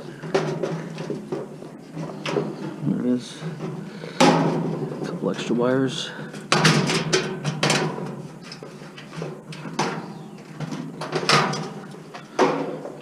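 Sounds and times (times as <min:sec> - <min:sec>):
sharp knocks: 0:03.6 - 0:05.1.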